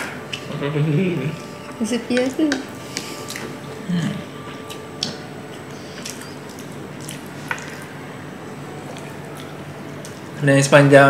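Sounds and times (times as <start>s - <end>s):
person humming: 0.4s - 1.8s, 2.6s - 5.0s
wet chewing and mouth sounds: 2.5s - 8.0s, 8.8s - 10.4s.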